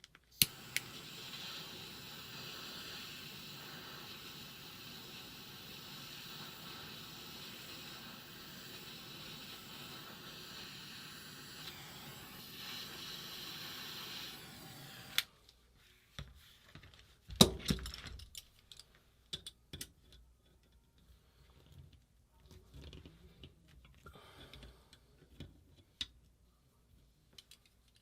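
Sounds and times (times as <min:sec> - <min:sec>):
steady hiss: 0:00.3 - 0:15.9.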